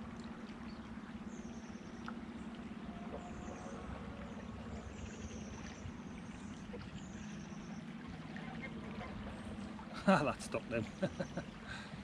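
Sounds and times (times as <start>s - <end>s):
fast-flowing river water: 2.0s - 12.0s.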